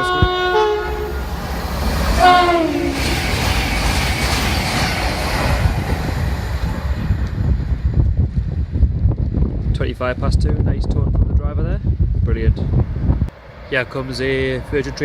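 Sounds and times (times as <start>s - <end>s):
train two-tone horn: 0.0s - 1.3s, 2.2s - 3.2s
train rushing past: 0.0s - 8.8s.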